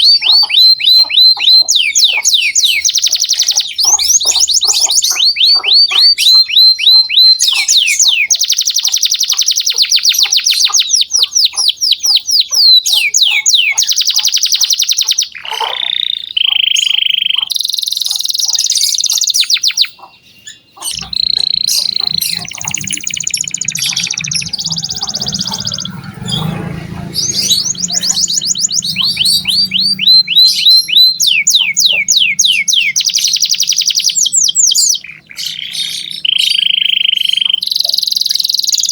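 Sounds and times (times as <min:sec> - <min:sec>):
canary singing trills: 0:00.0 - 0:38.9
low hum: 0:20.9 - 0:31.7.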